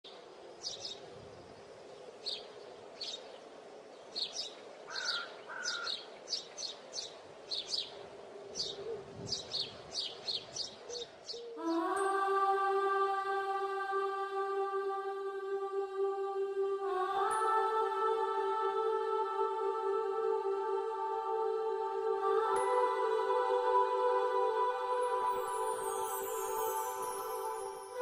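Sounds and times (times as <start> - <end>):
small birds chirping: 0.1 - 12.0
faint steady hum: 11.4 - 28.0
music: 11.6 - 28.0.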